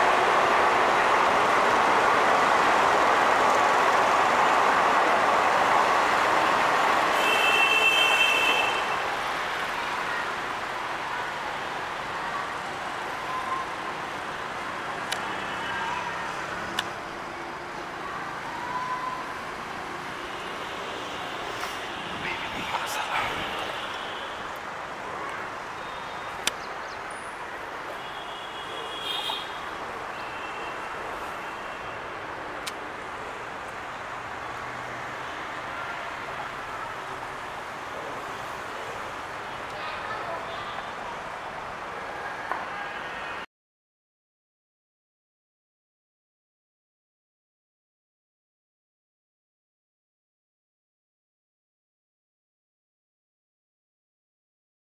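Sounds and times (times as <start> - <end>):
train wheels rushing on rail: 0.0 - 7.2
road traffic rumble: 0.0 - 43.5.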